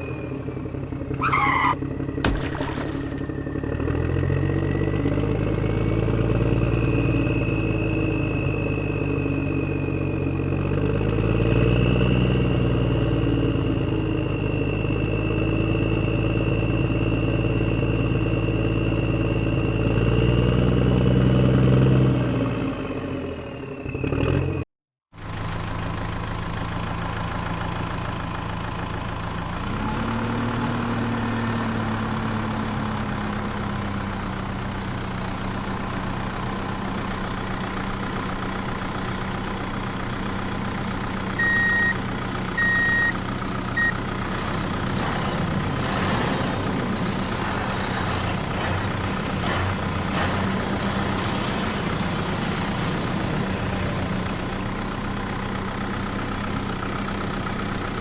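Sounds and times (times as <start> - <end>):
vehicle engine running: 0.0 - 20.8, 25.2 - 58.0
short high beeps: 41.4 - 42.0, 42.6 - 43.2, 43.8 - 44.0.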